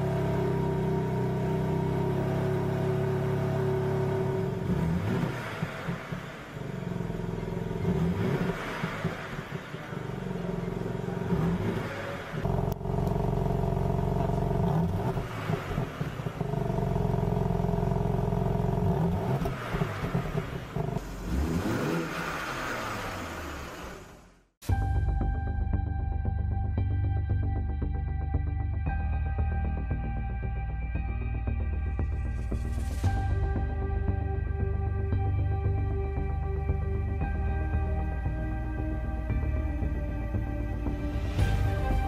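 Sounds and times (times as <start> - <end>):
car engine idling: 0.0 - 24.6
engine revving with throttle blips: 0.0 - 24.6.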